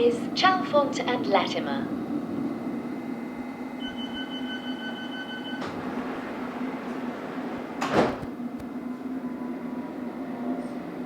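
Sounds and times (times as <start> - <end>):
train humming: 0.0 - 11.0
train doors sliding shut: 3.8 - 9.0.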